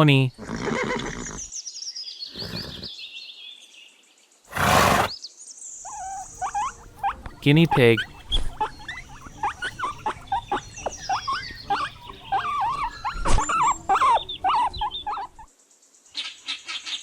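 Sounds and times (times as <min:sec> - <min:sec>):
guinea pig squeaking: 0:05.8 - 0:15.5.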